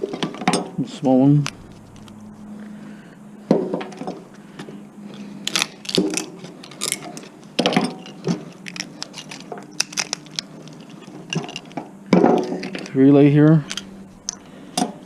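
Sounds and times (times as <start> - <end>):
hand tools clicking and scraping: 4.0 - 15.0.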